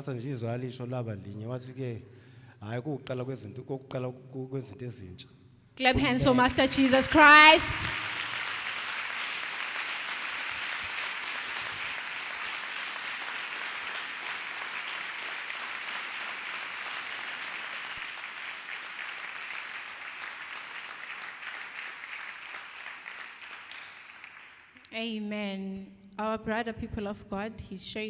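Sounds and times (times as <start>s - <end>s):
congregation applauding: 5.9s - 24.8s.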